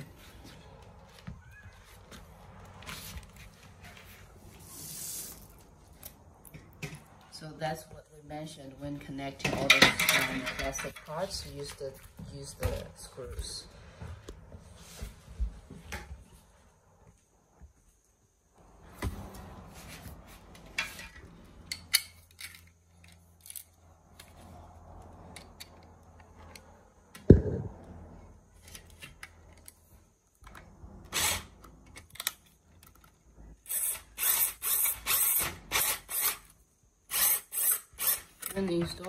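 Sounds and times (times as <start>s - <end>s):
sharp knock: 27.3s - 27.8s.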